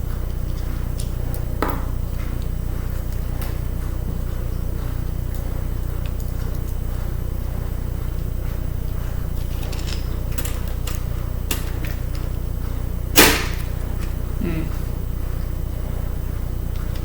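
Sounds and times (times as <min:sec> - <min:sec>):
steady low hum: 0:00.0 - 0:17.0
metal parts clattering: 0:09.4 - 0:12.0
hand tools clicking on metal parts: 0:09.4 - 0:12.2.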